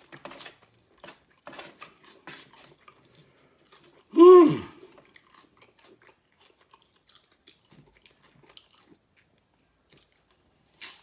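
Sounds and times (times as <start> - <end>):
crunching corn chips: 9.9 - 11.0.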